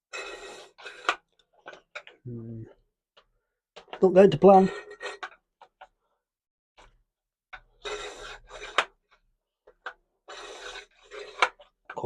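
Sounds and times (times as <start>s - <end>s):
short scraping rasps: 10.3s - 11.6s.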